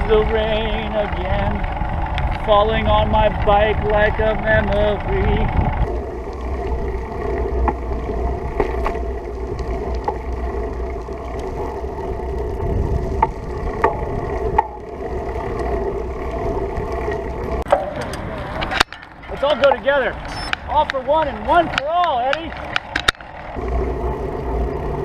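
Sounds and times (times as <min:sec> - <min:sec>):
sharp ticks: 0:00.0 - 0:06.4, 0:17.0 - 0:23.6
humming tyre noise: 0:00.0 - 0:25.0
wind rumble on microphone: 0:00.0 - 0:25.0.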